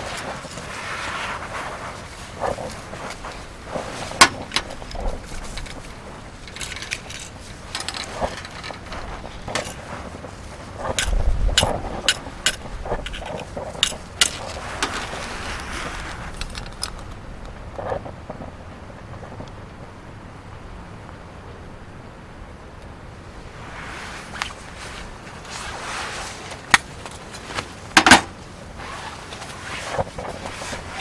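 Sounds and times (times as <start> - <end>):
sharp clicks and knocks: 3.0 - 10.0, 10.8 - 17.6, 28.0 - 28.4.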